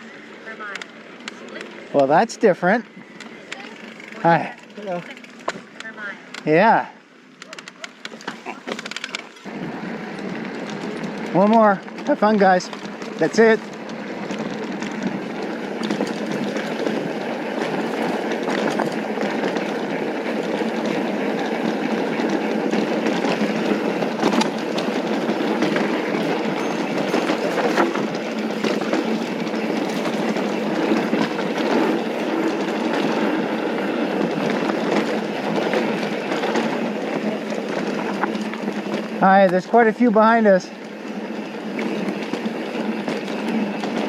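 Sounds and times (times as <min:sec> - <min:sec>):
bike rattling and clacking: 0:00.6 - 0:44.0
bike tyres crunching over dirt: 0:07.7 - 0:44.0.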